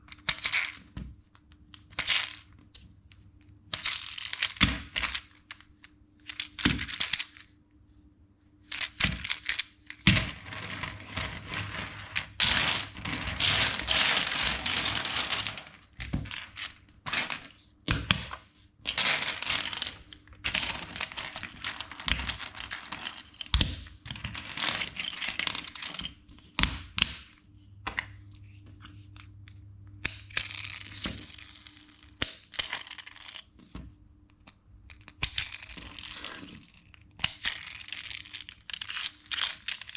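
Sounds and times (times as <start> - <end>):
plastic bricks rattling: 8.8 - 18.2, 18.9 - 26.1
plastic bricks clicking: 12.2 - 26.2.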